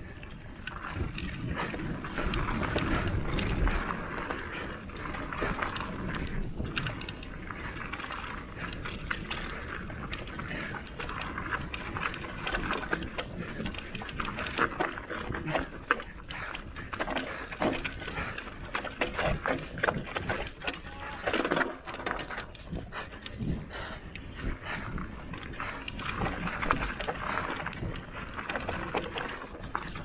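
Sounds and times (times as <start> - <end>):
bike tyres on dirt and gravel: 0.0 - 30.0
bike chain and frame rattling: 0.5 - 30.0.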